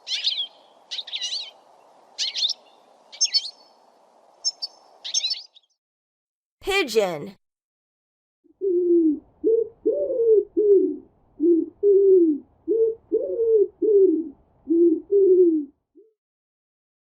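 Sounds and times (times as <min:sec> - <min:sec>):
pigeon cooing: 0:08.5 - 0:16.1.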